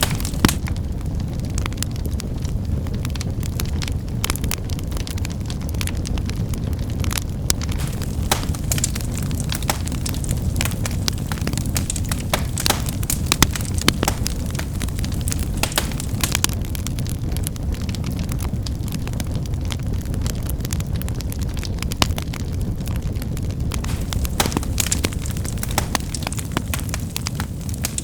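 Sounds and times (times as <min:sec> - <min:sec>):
fire crackling: 0:00.0 - 0:28.0.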